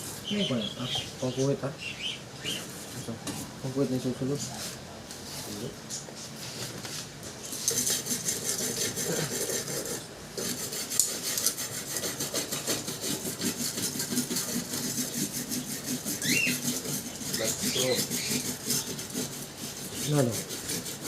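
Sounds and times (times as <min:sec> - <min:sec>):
hand tool scraping metal: 0:07.5 - 0:21.0.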